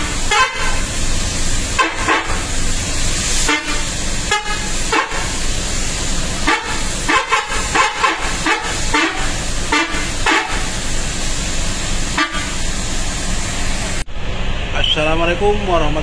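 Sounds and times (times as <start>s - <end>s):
multi-tone bus horn toots: 0.0s - 1.0s, 1.7s - 2.6s, 3.4s - 5.4s, 6.4s - 10.8s, 12.1s - 12.7s.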